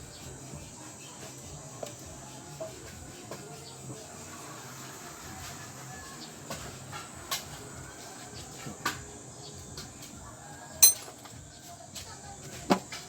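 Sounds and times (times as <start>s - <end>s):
hand tools clicking on metal: 10.8s - 11.4s.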